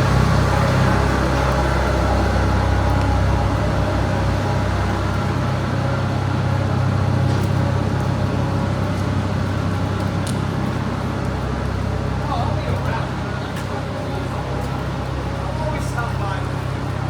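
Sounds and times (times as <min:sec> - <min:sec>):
city street traffic rumble: 0:00.0 - 0:17.0.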